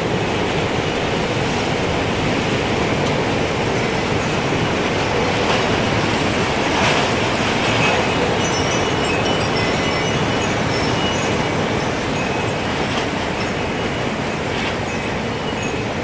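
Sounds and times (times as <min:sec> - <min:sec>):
gusting wind: 0:00.0 - 0:16.0
wind chime tinkles: 0:03.7 - 0:06.1, 0:07.1 - 0:16.0.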